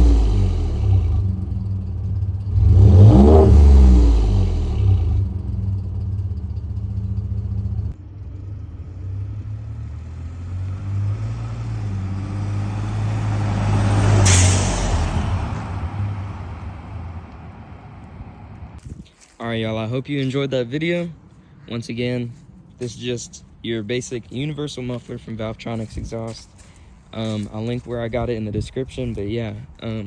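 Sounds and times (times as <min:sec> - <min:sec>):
truck exhaust revving and idling: 0:00.0 - 0:18.9
short rush of noise: 0:13.5 - 0:16.4.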